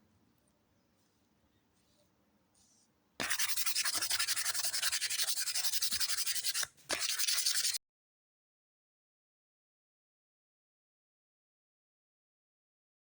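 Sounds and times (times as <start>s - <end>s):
sanding rasp on knife: 3.2s - 7.8s.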